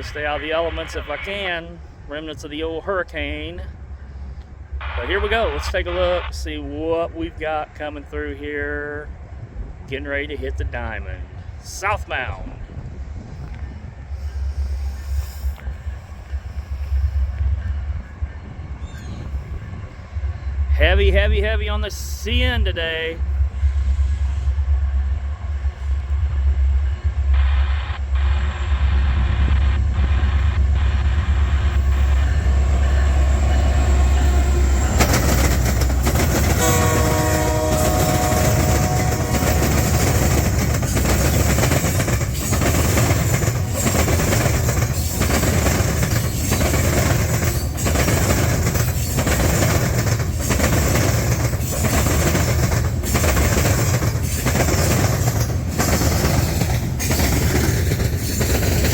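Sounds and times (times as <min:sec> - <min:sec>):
diesel locomotive rumble: 0:00.0 - 0:58.9
train horn chord: 0:30.8 - 0:40.7
wheels clacking over rail joints: 0:32.3 - 0:58.9.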